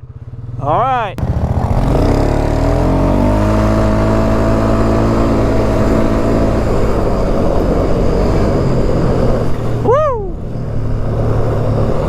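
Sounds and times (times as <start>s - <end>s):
vehicle engine at high revs: 0.0s - 12.0s.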